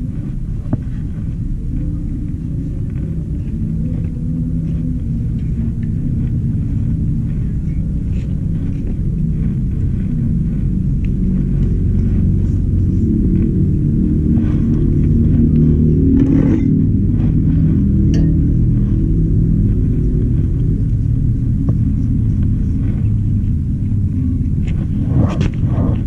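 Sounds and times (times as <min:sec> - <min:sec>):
muffled bass-heavy music: 0:00.0 - 0:26.0.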